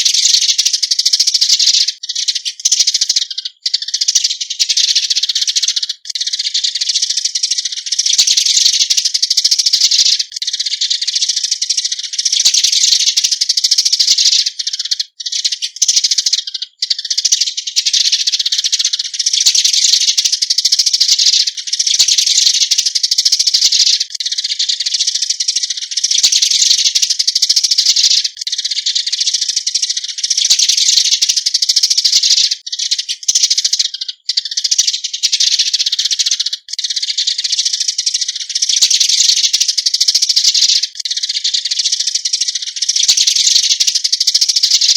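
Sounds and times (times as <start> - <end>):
sparrows chattering: 0.0 - 44.9.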